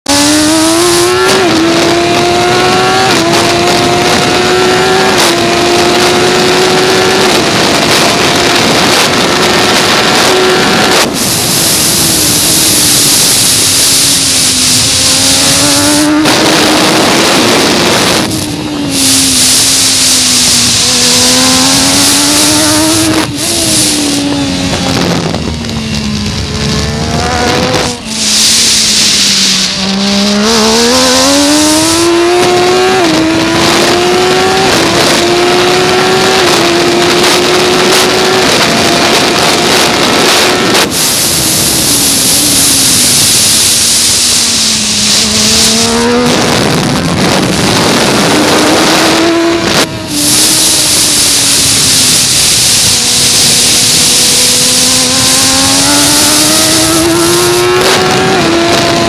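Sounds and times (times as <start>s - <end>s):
motorcycle race engine revving: 0.0s - 59.0s
loud rushing hiss: 11.1s - 16.2s, 17.8s - 24.4s, 27.8s - 32.0s, 40.8s - 46.1s, 50.0s - 57.7s.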